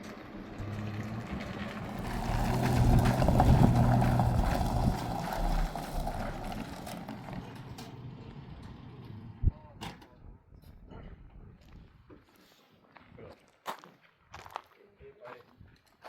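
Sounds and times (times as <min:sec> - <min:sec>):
vehicle engine running: 0:00.0 - 0:09.5.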